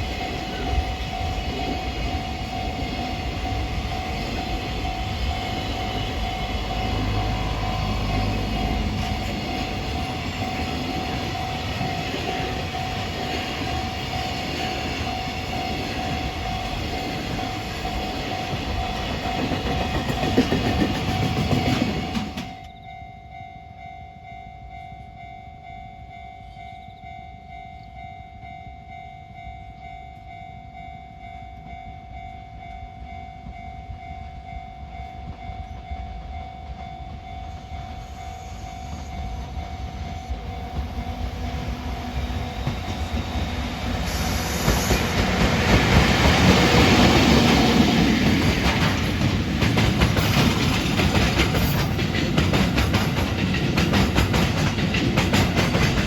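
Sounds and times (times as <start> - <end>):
wheels rumbling on rail: 0.0 - 23.9, 24.7 - 56.0
freight train passing: 0.0 - 56.0
wagons clattering: 44.8 - 56.0.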